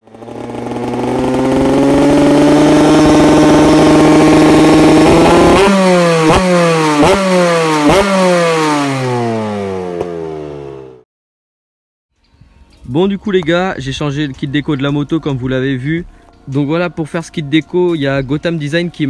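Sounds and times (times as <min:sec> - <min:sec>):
motocross engine revving: 0:00.0 - 0:11.0.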